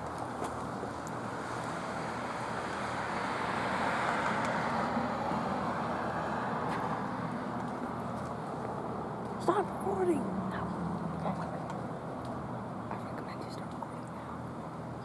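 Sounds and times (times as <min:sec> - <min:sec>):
vehicle passing: 0:01.4 - 0:07.6, 0:08.4 - 0:12.6.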